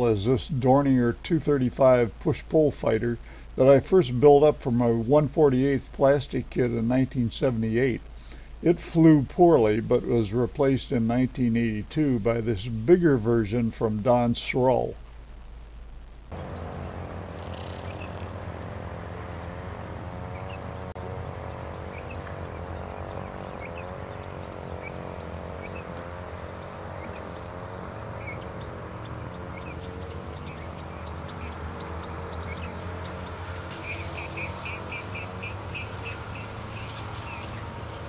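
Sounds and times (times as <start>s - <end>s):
steady low hum: 0.0s - 33.7s
small birds chirping: 16.3s - 38.0s.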